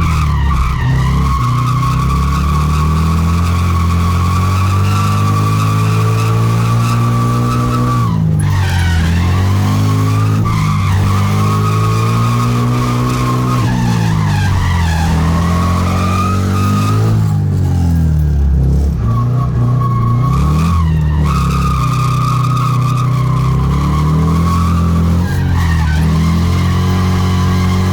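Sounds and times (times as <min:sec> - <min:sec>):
car engine revving high: 0:00.0 - 0:27.9
tyres skidding and squealing: 0:00.0 - 0:27.9.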